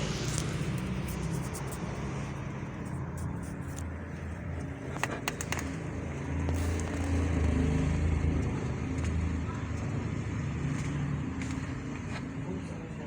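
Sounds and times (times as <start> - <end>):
sharp clicks: 4.6 - 7.5.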